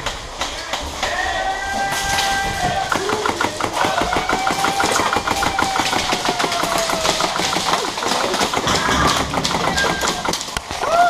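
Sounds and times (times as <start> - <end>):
airsoft gun firing full auto: 2.8 - 10.6.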